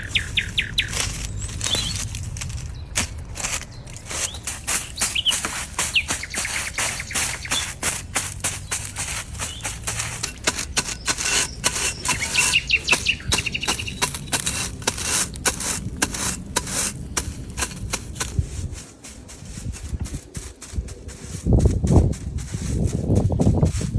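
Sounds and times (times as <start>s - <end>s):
bird chirping: 0.0s - 14.9s.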